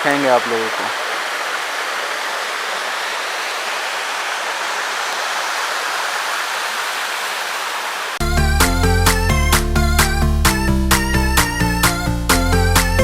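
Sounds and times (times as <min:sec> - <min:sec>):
waterfall rushing and splashing: 0:00.0 - 0:08.2
music: 0:08.2 - 0:13.0.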